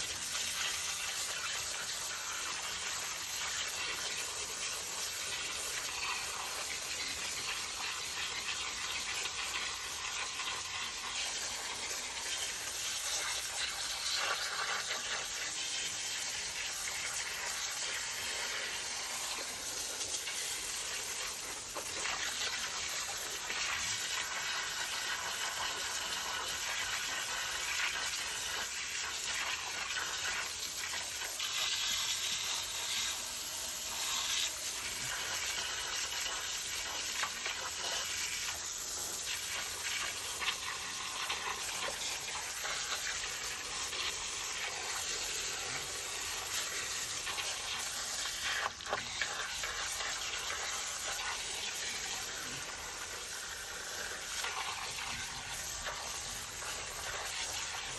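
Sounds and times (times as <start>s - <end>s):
hissing water spray: 0.0s - 57.9s.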